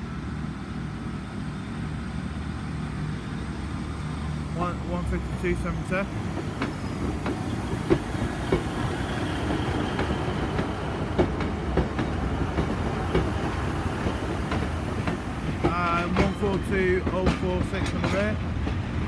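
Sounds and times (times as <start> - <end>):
train engines rumbling: 0.0 - 19.0
wheels clicking over rail joints: 5.1 - 19.0.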